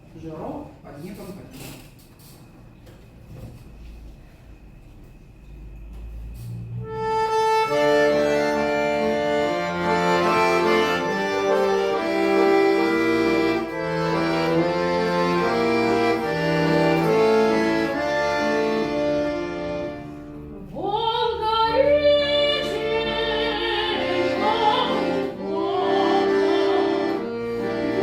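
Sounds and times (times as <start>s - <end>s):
accordion playing held chords: 6.0s - 28.0s.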